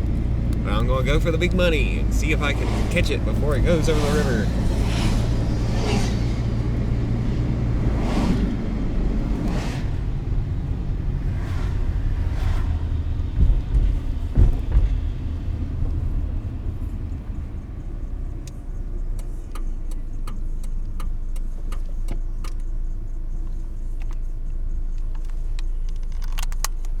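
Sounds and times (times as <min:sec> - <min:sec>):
car engine and road noise: 0:00.0 - 0:27.0
loud thumps: 0:12.0 - 0:16.4
sharp ticks: 0:18.3 - 0:27.0.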